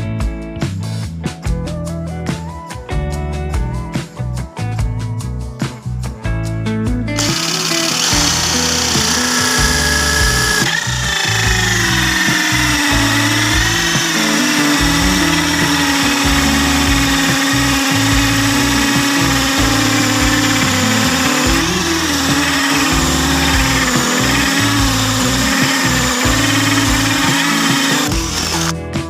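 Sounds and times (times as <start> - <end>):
electric drill with hole saw: 7.2 - 28.8.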